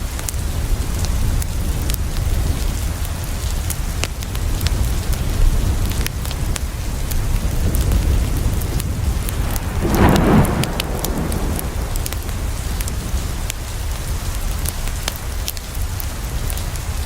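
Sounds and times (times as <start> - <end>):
rain on a window: 0.0 - 17.0
thunder rumble: 7.6 - 15.0.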